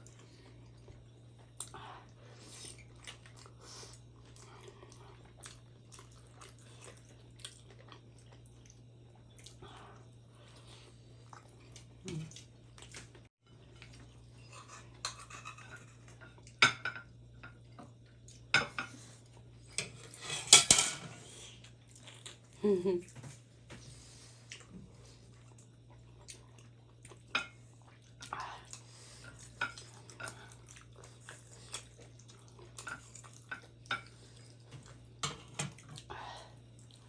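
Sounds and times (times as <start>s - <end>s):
soft chewing: 0.0s - 15.0s, 21.4s - 37.0s
cutlery clattering on a plate: 14.5s - 16.0s, 19.8s - 21.1s.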